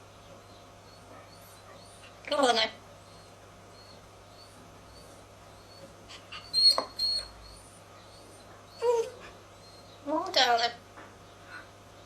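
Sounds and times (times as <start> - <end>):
parrot high peeps: 0.9 - 10.0.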